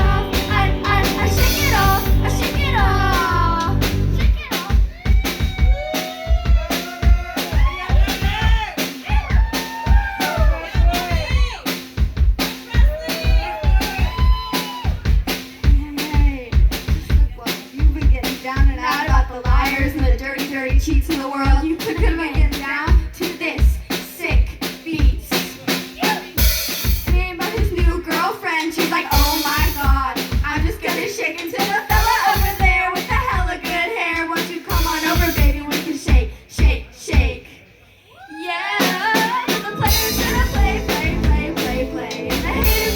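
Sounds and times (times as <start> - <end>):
person singing: 0.0 - 4.0, 38.6 - 42.9
rock band playing live: 0.0 - 23.2, 25.1 - 33.9, 38.9 - 42.9
drum kit beat: 0.0 - 37.5, 38.8 - 42.9.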